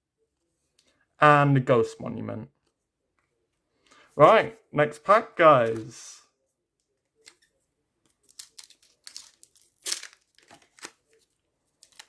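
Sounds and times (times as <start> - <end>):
wrapper tearing and crinkling: 8.2 - 11.1, 11.8 - 12.0.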